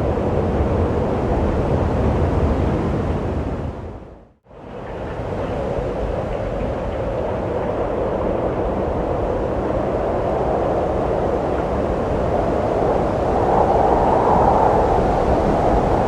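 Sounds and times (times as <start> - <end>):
wind blowing: 7.3 - 16.0.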